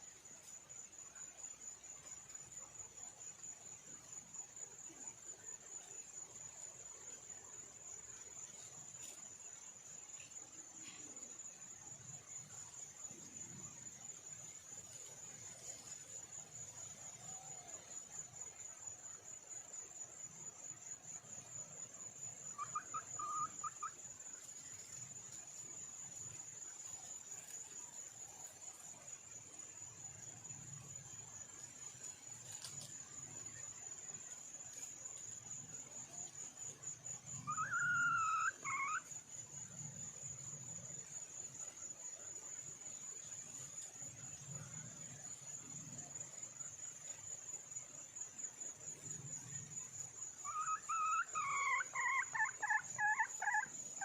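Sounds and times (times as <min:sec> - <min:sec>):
high insect trill: 0:00.0 - 0:54.0
junglefowl hen calling: 0:22.5 - 0:24.0, 0:37.5 - 0:39.1, 0:50.4 - 0:53.7.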